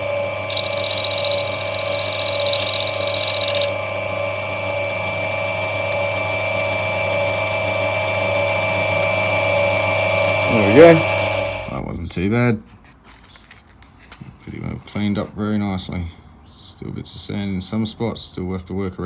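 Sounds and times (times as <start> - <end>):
grinding machine motor hum: 0.5 - 3.7
stone grinding hiss on wheel: 0.5 - 3.7.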